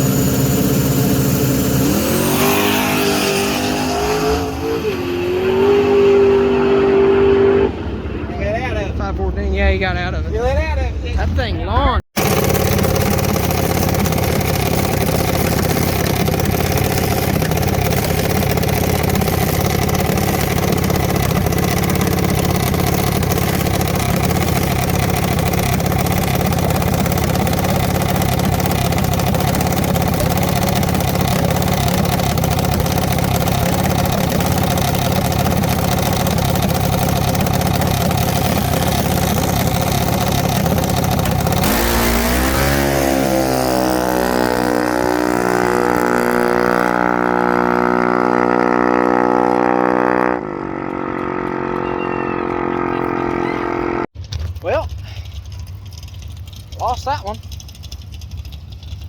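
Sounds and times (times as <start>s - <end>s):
engine idling: 0.0s - 3.2s, 12.2s - 48.6s, 50.8s - 59.0s.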